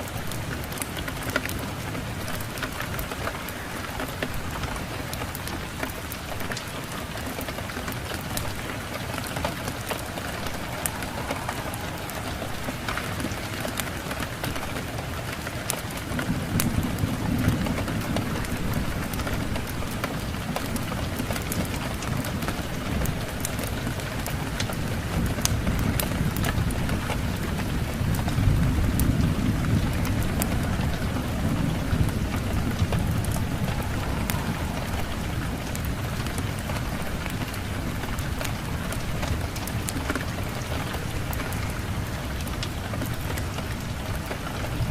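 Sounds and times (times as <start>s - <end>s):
steady rain: 0.0s - 44.9s
wood fire crackling: 0.0s - 44.9s
low rumble: 8.3s - 14.9s, 28.3s - 37.8s.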